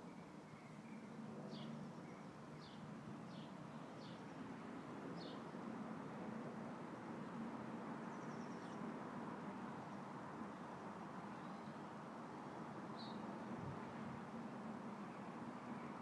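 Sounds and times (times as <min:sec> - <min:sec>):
wind rustling leaves: 0:08.7 - 0:16.0.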